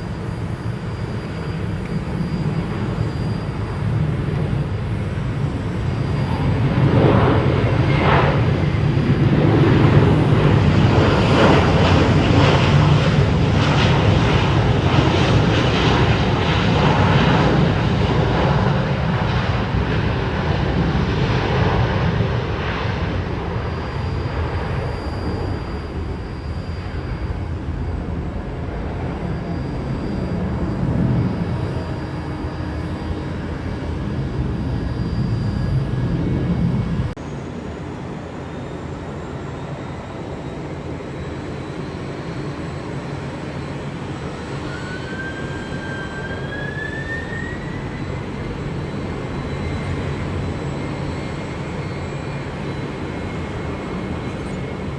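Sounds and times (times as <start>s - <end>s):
freighter jet engine noise: 0.0s - 54.9s
jet airliner engines rumbling: 0.0s - 54.9s
rising engine whine: 0.0s - 54.9s.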